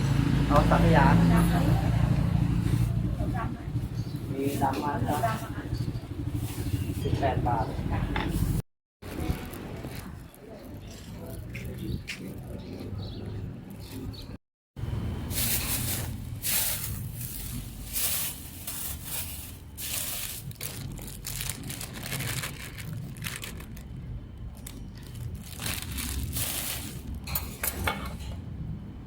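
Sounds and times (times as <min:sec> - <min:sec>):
plastic wrapping crinkling: 0:15.4 - 0:27.3.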